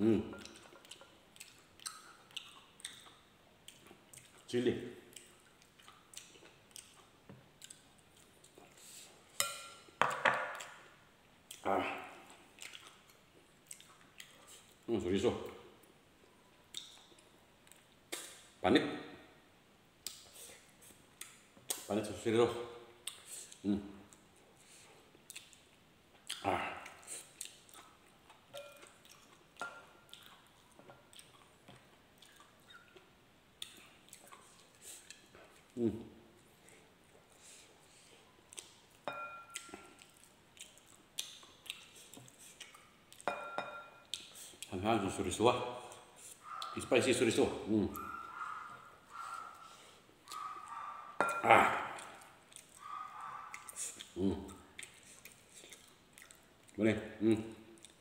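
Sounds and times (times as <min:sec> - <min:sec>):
man chewing rice: 0:00.4 - 0:04.5, 0:05.1 - 0:09.4, 0:12.2 - 0:14.8, 0:23.0 - 0:35.8, 0:36.4 - 0:43.3, 0:45.9 - 0:46.8, 0:48.0 - 0:56.8, 0:57.8 - 0:58.0.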